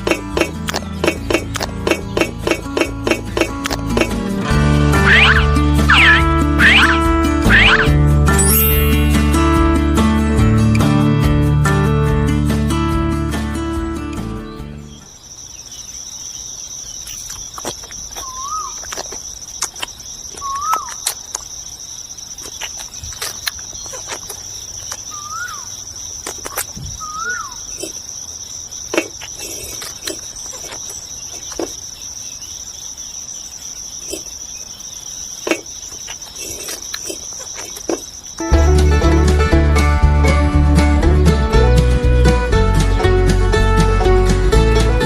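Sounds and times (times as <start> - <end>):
sharp clicks and taps: 0.0 - 4.2
insects trilling: 0.0 - 9.8, 14.2 - 39.2
bird chirping: 4.9 - 9.7, 14.4 - 38.5.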